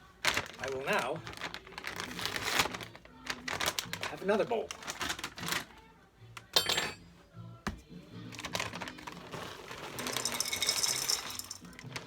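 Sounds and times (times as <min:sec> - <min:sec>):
granola poured into a bowl: 0:09.0 - 0:12.0.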